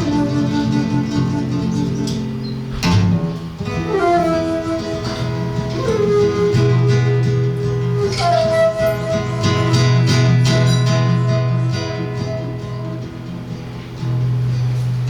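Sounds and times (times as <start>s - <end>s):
flute melody: 0.0s - 13.6s
guitar bass notes: 0.3s - 8.0s.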